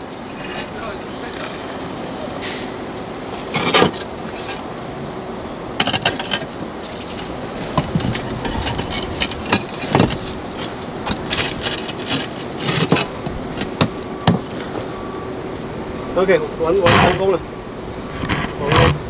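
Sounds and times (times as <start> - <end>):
roof tiles knocking and scraping: 5.8 - 14.9.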